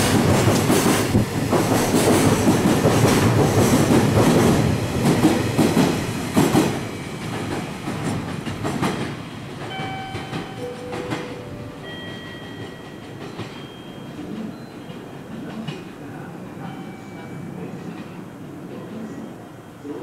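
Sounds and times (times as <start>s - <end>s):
train wheels clattering: 0.0s - 16.0s
train wheels squealing: 11.9s - 15.1s.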